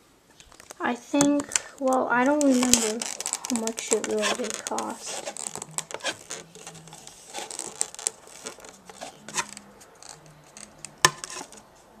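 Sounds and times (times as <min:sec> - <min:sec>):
handling clicks and rustles: 0:00.3 - 0:11.7.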